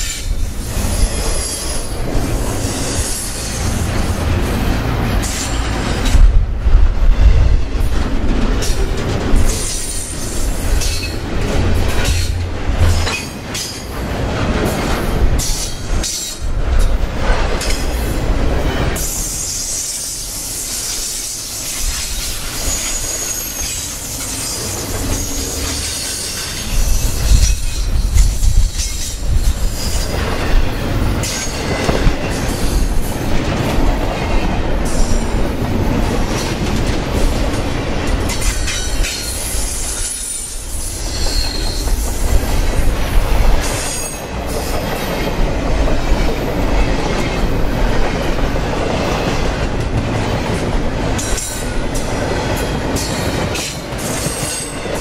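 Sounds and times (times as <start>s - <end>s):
freight train wheels rumbling: 0.0s - 55.0s
high wheel squeal: 18.7s - 30.6s, 38.7s - 42.2s.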